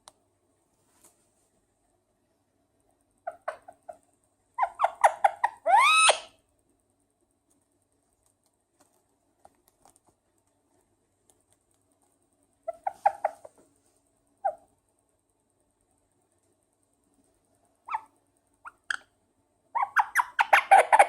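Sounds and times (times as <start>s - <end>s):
parakeet chirps and squawk: 3.2s - 4.0s, 4.6s - 6.4s, 12.7s - 13.5s, 17.8s - 19.1s, 19.8s - 21.0s.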